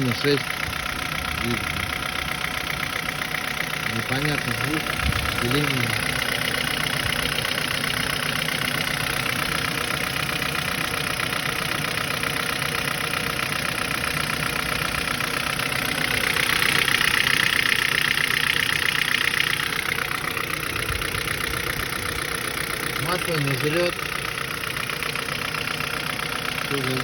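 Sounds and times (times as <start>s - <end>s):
car engine idling with clatter: 0.0s - 27.0s.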